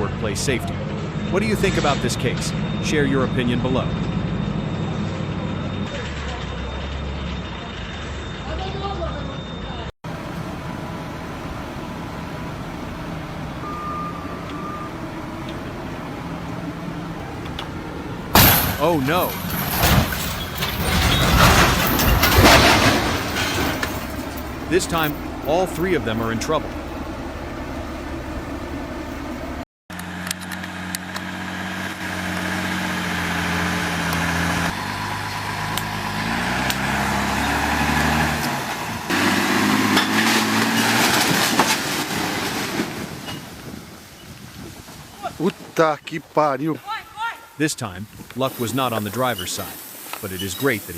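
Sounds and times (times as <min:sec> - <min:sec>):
heavy vehicle engine running: 0:00.0 - 0:43.2
high electronic beep: 0:01.1 - 0:06.0, 0:06.6 - 0:09.9, 0:13.6 - 0:15.0
rattling: 0:12.8 - 0:29.6.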